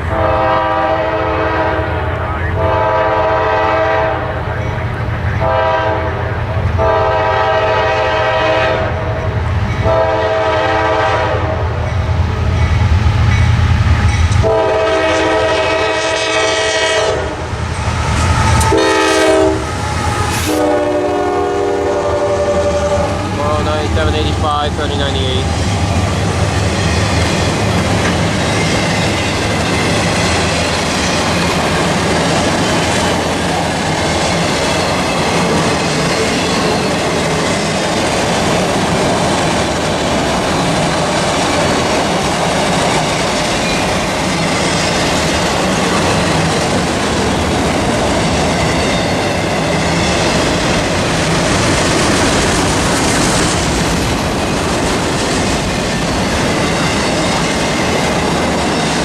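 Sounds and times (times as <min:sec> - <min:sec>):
freight train wheels rumbling: 0:00.0 - 0:59.0
clickety-clack over rail joints: 0:18.1 - 0:18.8, 0:23.2 - 0:59.0.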